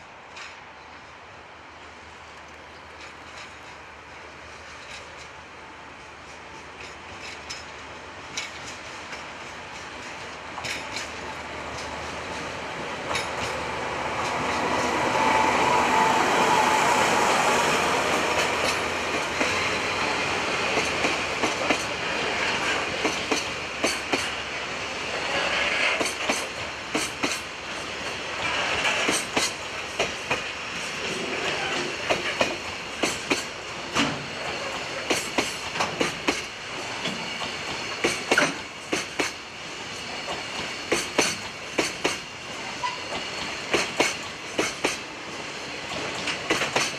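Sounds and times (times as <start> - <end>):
freight train rushing past: 0.0 - 46.9
wheels clacking over rail joints: 6.0 - 24.4, 25.1 - 46.9.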